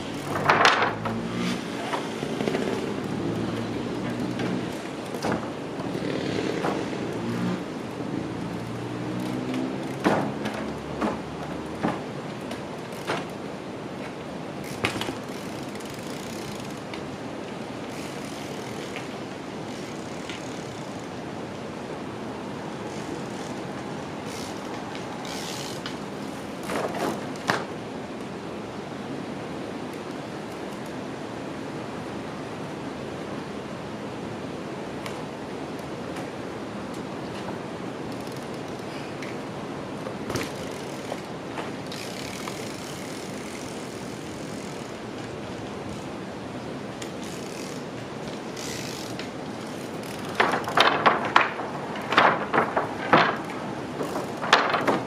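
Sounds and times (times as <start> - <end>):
steady background noise: 0.0 - 55.0
bike knocks and landing impacts: 4.1 - 7.0, 9.5 - 12.2, 14.6 - 16.7, 40.0 - 42.6.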